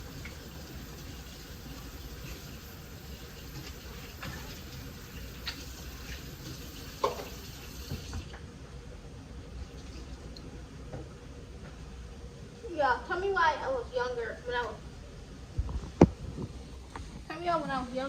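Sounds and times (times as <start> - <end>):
water running from a tap: 0.0 - 8.4.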